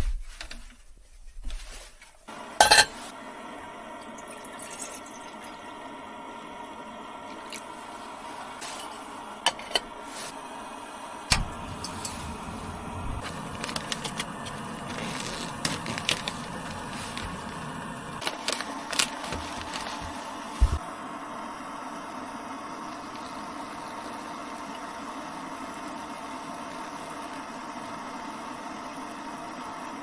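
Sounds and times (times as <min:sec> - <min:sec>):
steady hum: 0:02.3 - 0:29.9
low rumble: 0:11.4 - 0:13.3.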